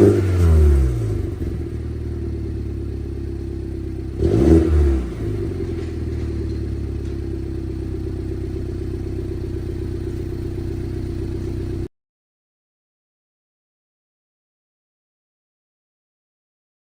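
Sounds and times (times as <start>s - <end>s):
car engine revving then idling: 0.0s - 11.9s.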